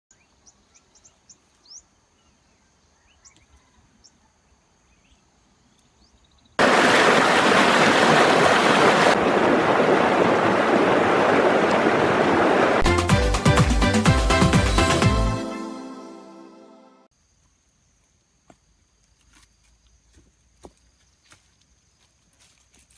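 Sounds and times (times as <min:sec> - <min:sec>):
loud rushing noise: 0:06.6 - 0:13.7.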